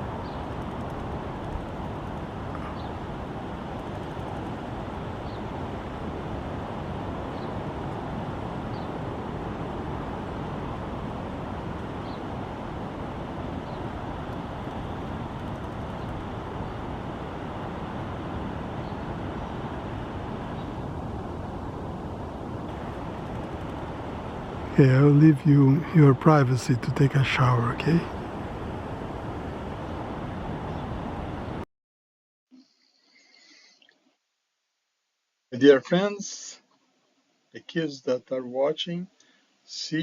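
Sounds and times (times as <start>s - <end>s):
distant traffic hum: 0.0s - 31.6s.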